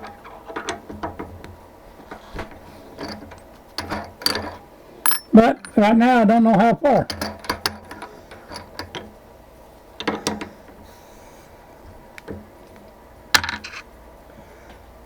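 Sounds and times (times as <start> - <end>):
faint steady hum: 0.0 - 15.0
metal tools clinking: 2.6 - 6.1, 6.9 - 9.1.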